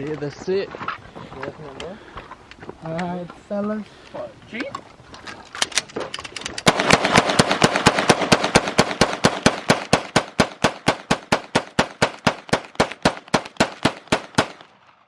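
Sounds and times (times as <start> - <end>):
rapid gunfire: 6.6 - 14.7.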